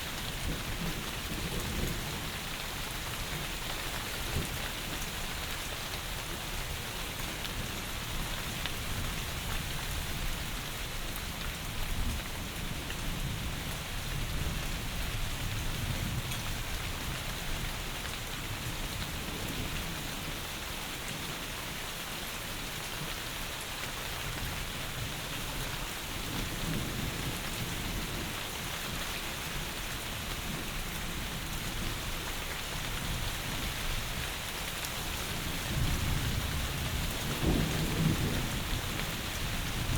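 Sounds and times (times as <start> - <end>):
heavy rain falling: 0.0 - 39.9
thunder rumbling: 35.6 - 39.9.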